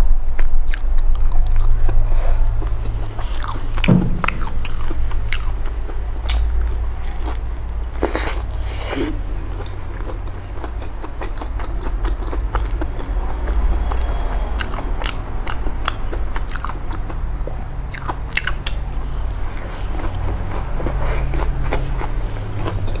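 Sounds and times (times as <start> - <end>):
chewing crispy fried food: 0.4 - 23.0
low hum: 1.1 - 7.8.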